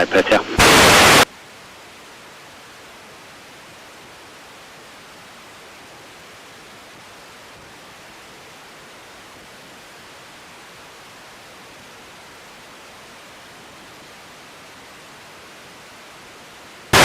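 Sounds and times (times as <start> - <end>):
radio static hiss: 0.0 - 1.3.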